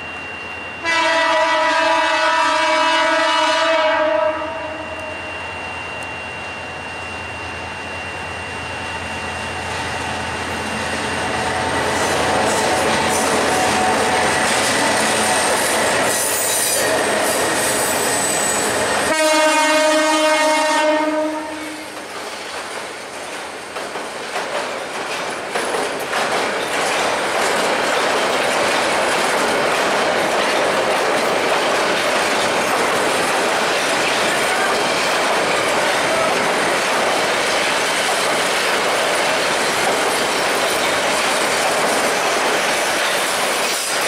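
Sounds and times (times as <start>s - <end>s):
train rumbling past: 0.0s - 44.0s
train horn blast: 0.8s - 5.3s, 19.0s - 22.0s
wheels rattling on track: 9.1s - 19.2s, 21.7s - 44.0s.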